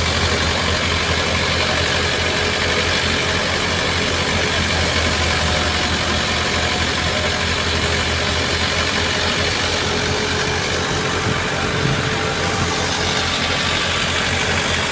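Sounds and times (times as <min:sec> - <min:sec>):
tractor engine drone: 0:00.0 - 0:14.9
threshing drum rushing hiss: 0:08.5 - 0:14.9.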